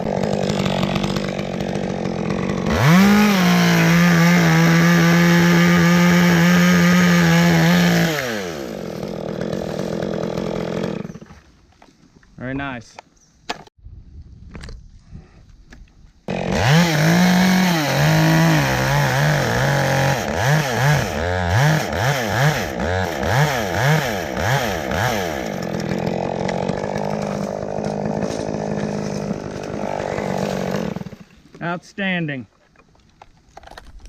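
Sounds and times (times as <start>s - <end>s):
chainsaw revving: 0.0s - 11.3s, 16.3s - 31.4s.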